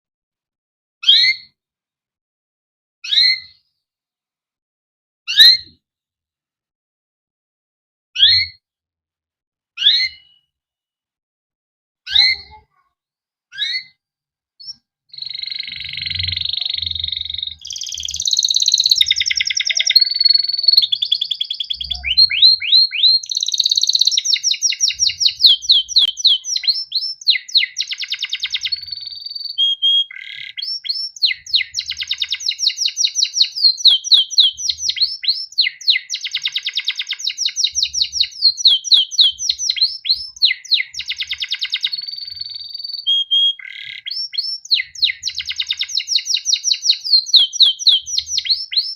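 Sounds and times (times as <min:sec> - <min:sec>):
canary chirps: 0:01.0 - 0:01.5, 0:03.0 - 0:03.6, 0:08.2 - 0:08.6, 0:09.8 - 0:10.5, 0:12.1 - 0:12.9, 0:13.5 - 0:14.0, 0:14.6 - 0:48.9
canary song with trills: 0:01.0 - 0:01.6, 0:03.0 - 0:03.8, 0:08.2 - 0:08.6, 0:09.8 - 0:10.5, 0:12.1 - 0:14.0, 0:14.6 - 0:48.9.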